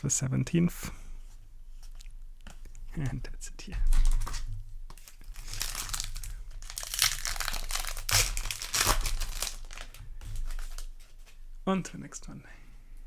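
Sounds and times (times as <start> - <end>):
foil wrapper crinkling and tearing: 3.9 - 11.1.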